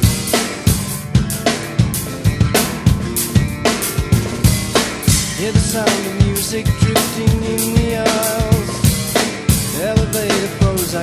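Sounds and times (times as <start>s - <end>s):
bass guitar: 0.0s - 11.0s
electric guitar: 0.0s - 11.0s
rock drum kit: 0.0s - 11.0s.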